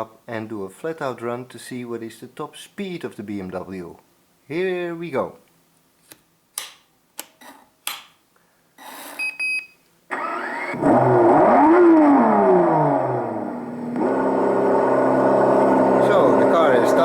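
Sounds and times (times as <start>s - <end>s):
short electronic beeps: 9.2s - 9.8s
car engine revving: 10.1s - 17.0s.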